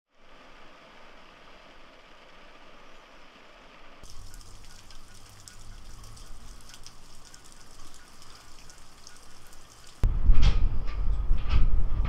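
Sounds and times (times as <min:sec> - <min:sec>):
rain drops ticking: 0:04.0 - 0:10.1.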